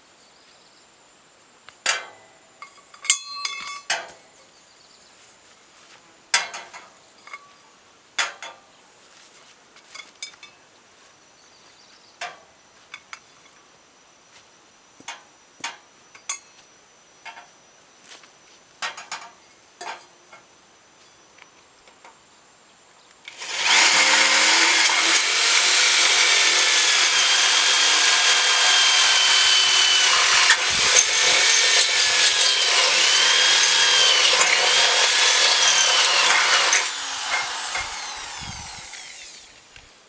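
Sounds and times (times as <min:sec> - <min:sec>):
ringing metallic clink: 0:02.6 - 0:04.0.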